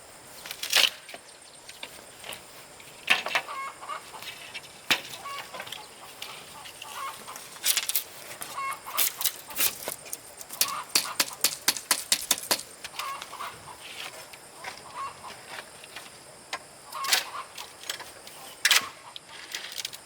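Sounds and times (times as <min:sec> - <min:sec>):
chickens clucking: 0:01.6 - 0:19.6
sharp clicks or knocks: 0:10.5 - 0:13.0.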